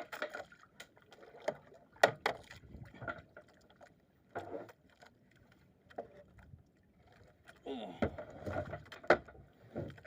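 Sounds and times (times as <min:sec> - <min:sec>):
short water splashes: 0:00.0 - 0:04.0.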